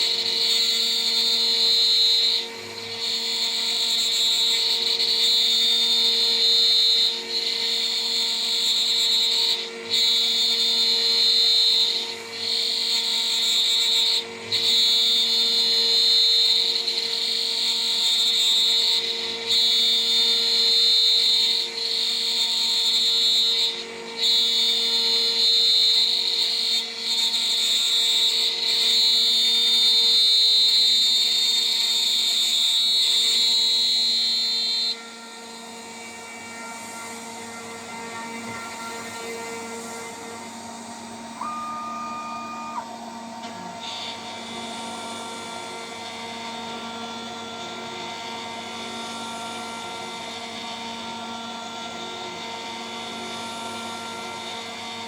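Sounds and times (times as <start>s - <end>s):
router spindle high whine: 0.0s - 55.0s.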